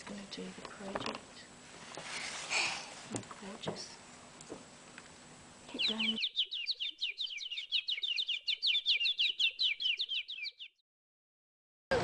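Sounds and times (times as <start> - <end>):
bird chirping fast: 5.7 - 10.8.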